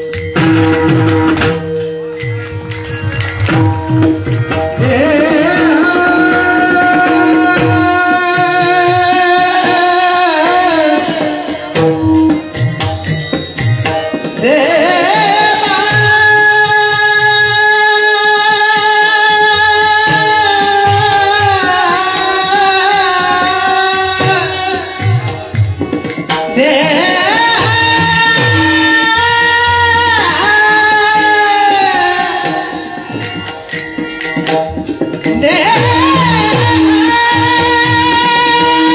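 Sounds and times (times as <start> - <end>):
hand drum beats: 0.0 - 16.2
devotional singing: 4.3 - 11.8, 14.4 - 25.4, 26.5 - 33.5, 35.2 - 38.9.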